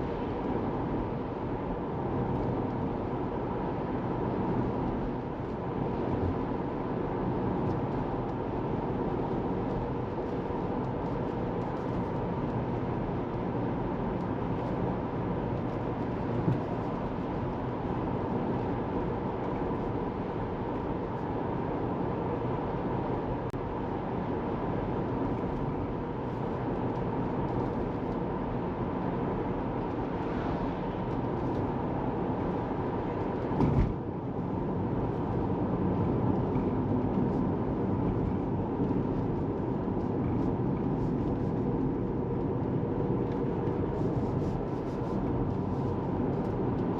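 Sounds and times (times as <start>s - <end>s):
road and tyre noise: 0.0s - 46.9s
thump from road bump: 33.6s - 34.0s.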